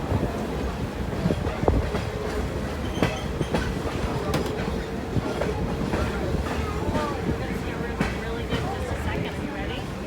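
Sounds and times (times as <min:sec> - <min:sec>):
train rumbling on track: 0:00.0 - 0:10.0
wheels squealing on rail: 0:02.8 - 0:03.8.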